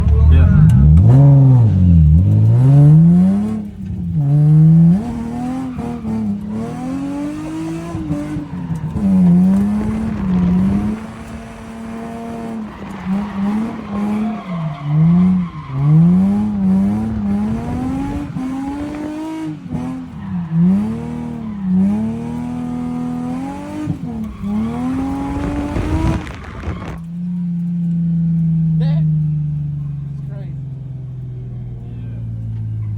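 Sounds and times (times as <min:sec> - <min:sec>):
car engine revving: 0:00.0 - 0:32.9
tyres squealing: 0:07.2 - 0:22.8.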